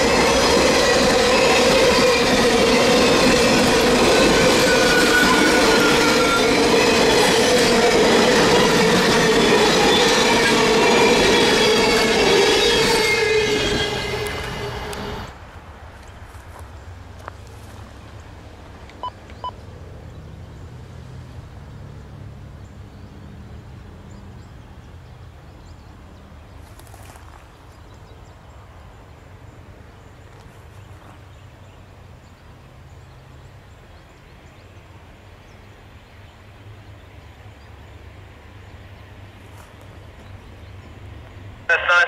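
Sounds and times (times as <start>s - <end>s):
train rumble: 0.0s - 19.5s.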